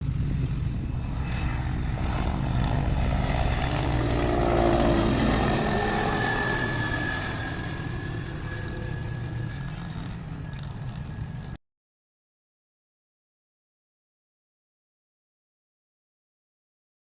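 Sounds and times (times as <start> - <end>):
helicopter flying low: 0.0 - 11.6.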